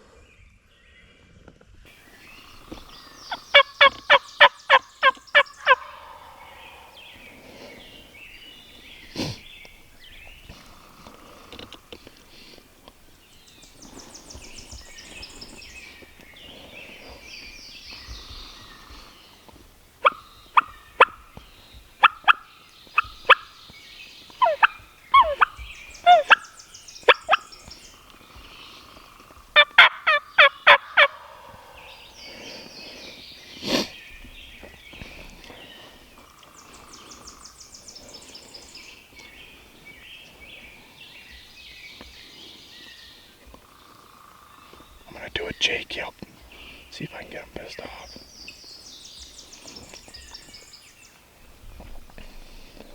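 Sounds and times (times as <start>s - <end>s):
faint songbirds singing: 0.0s - 52.9s
turkey yelping: 3.3s - 6.9s, 20.0s - 21.2s, 22.0s - 23.6s, 24.4s - 26.5s, 27.1s - 27.5s, 29.6s - 31.8s.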